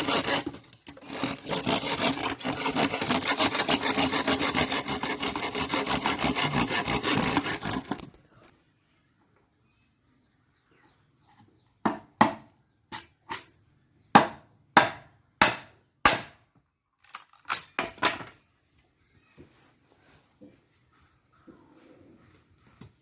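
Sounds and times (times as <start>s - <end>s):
wood chopping strikes: 14.2s - 16.4s.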